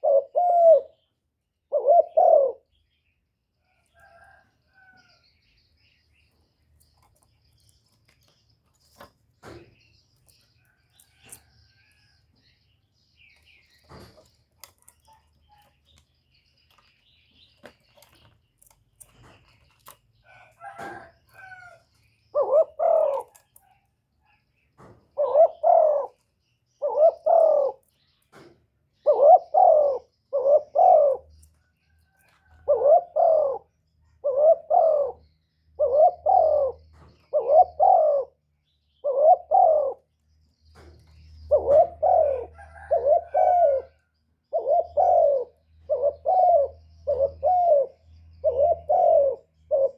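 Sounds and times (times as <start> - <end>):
dove cooing: 0.0 - 2.8, 19.1 - 23.7, 24.8 - 31.5, 32.1 - 40.1, 40.8 - 49.9.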